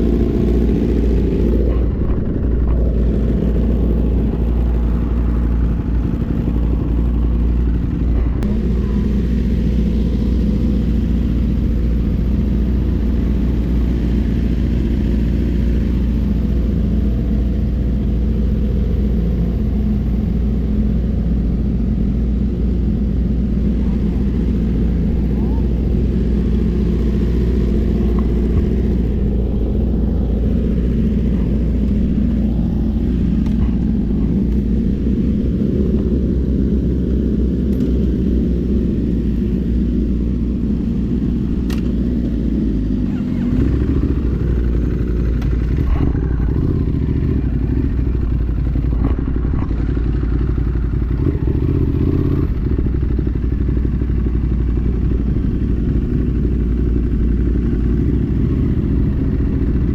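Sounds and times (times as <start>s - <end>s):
wind rumble on microphone: 0.0s - 42.3s
motorcycle engine: 0.0s - 59.9s.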